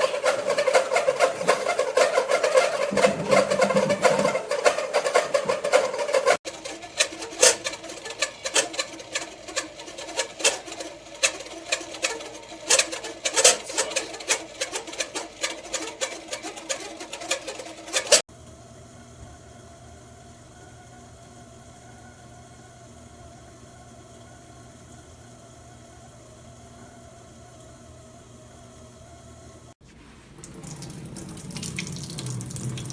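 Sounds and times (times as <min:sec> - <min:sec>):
kettle clicking and rattling: 0:00.0 - 0:18.2.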